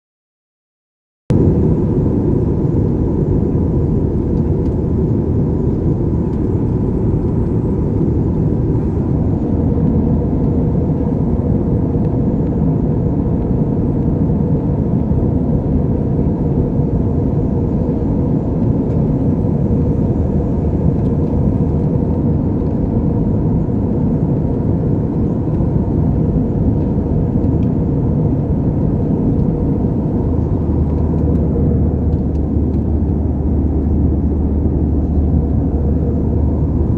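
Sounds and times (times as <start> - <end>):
jet airliner cabin noise: 1.3 - 36.9.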